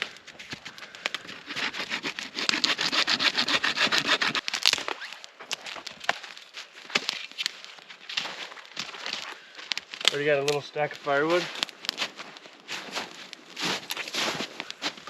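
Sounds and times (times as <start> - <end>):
sharp wood crack: 0.0 - 10.6, 11.4 - 15.0
hand saw cutting branch: 1.2 - 4.6.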